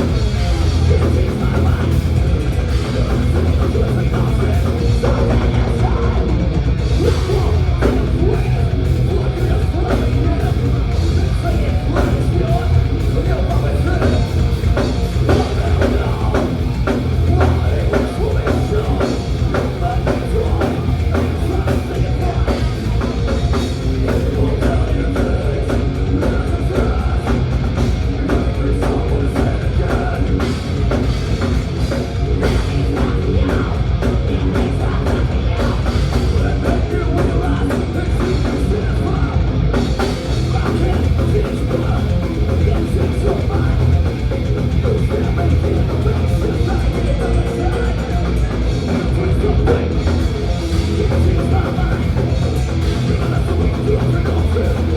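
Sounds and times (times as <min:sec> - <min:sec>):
bass guitar: 0:00.0 - 0:54.9
distorted guitars: 0:00.0 - 0:54.9
fast dense drumming: 0:00.0 - 0:54.9
person singing: 0:00.0 - 0:54.9.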